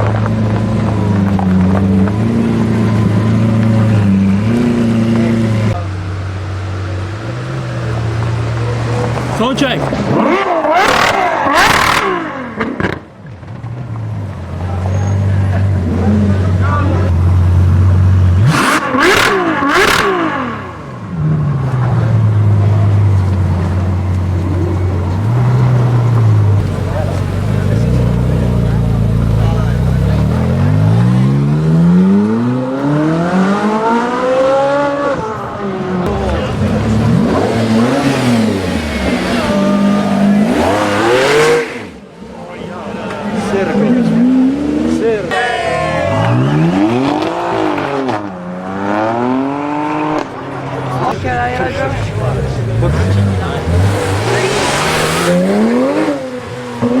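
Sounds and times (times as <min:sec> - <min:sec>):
loud exhaust blasts: 0:00.0 - 0:42.2
car engine accelerating hard: 0:00.0 - 0:57.0.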